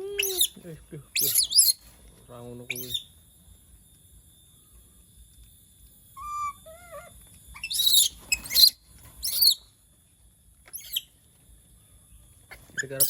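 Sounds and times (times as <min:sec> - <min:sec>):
monkey shrill calls: 0:00.0 - 0:01.8, 0:02.7 - 0:03.1, 0:06.2 - 0:09.6, 0:10.7 - 0:11.1.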